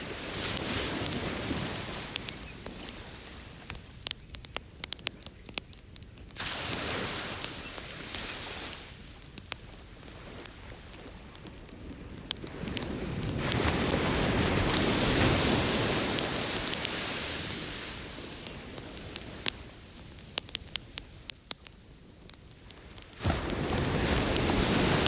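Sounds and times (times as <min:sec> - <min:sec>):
bonfire crackling and popping: 0:00.0 - 0:25.0
ocean wave washing: 0:06.4 - 0:19.7, 0:23.2 - 0:25.0.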